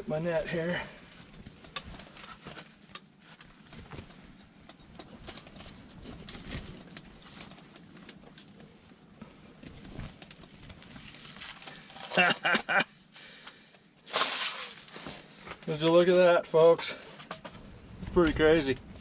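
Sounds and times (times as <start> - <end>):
dip net clicks and knocks: 1.6 - 3.1.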